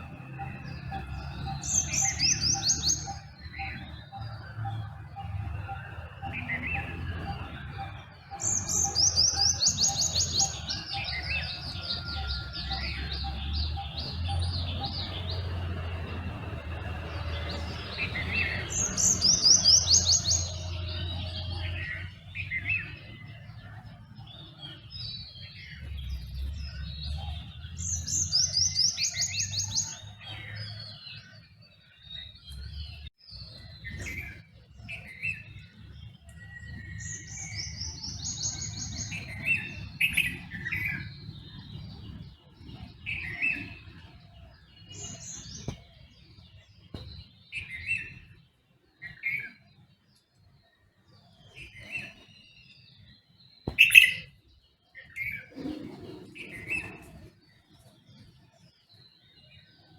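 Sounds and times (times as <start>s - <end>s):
birds chirping: 0.0s - 59.9s
bird singing falling trill: 50.5s - 59.9s.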